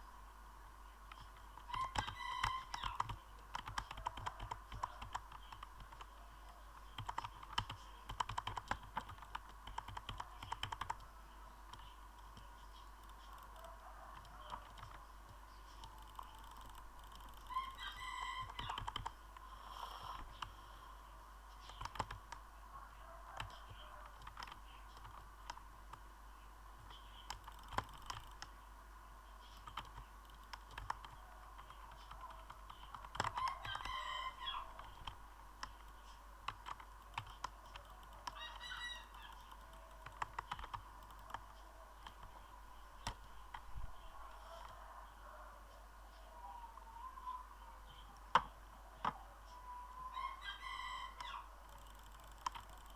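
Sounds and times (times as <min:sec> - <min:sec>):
sharp clicks: 0:01.1 - 0:11.1, 0:11.7 - 0:17.8, 0:18.4 - 0:19.5, 0:21.6 - 0:22.5, 0:23.4 - 0:26.0, 0:26.8 - 0:28.6, 0:29.5 - 0:34.0, 0:34.7 - 0:43.7, 0:51.2 - 0:52.9
bird calling: 0:37.8 - 0:40.2.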